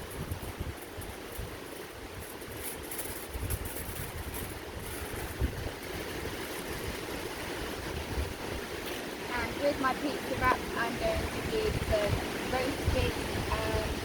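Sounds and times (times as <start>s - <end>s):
faint crackles: 0.0s - 7.2s
wind buffeting microphone: 0.0s - 14.0s.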